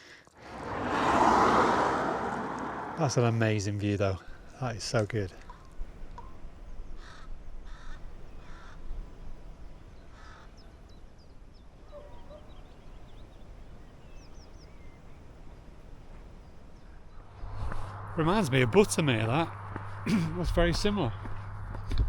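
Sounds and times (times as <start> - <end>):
small birds chirping: 5.4 - 17.3
crow cawing: 7.0 - 8.9, 10.1 - 10.6
low steady rumble: 15.0 - 22.0.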